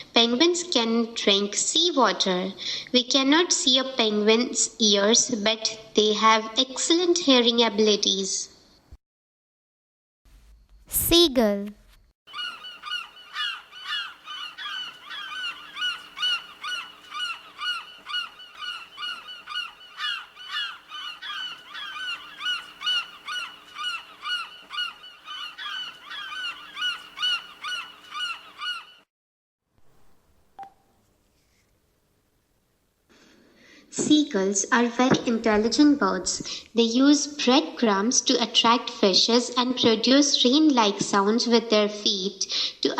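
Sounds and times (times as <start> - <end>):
gulls calling rapidly: 12.3 - 29.1.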